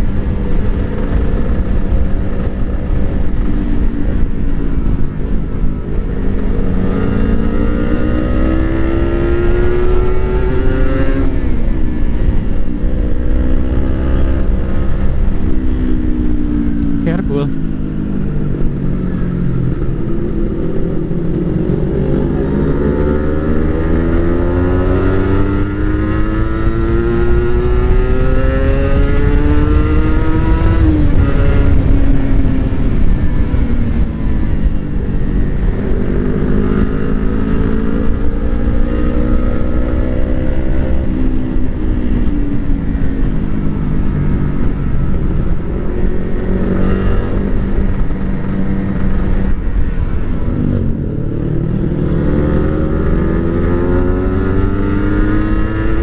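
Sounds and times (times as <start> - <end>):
motorcycle engine revving: 0.0 - 56.0
low rumble: 40.5 - 55.0.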